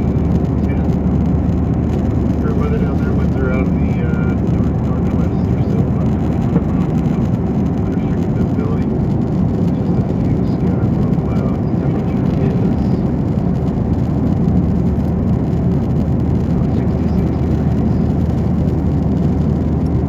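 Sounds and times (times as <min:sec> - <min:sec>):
airliner cabin engine rumble: 0:00.0 - 0:20.0.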